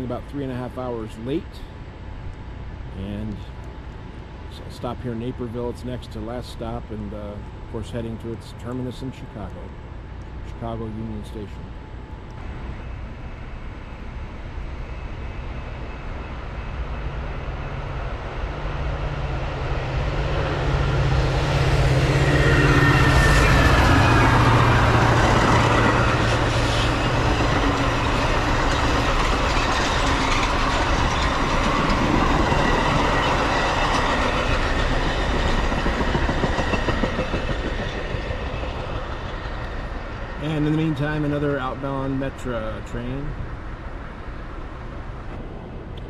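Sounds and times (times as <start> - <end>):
diesel locomotive drone: 0.0 - 46.0
train cars rolling past: 0.0 - 46.0.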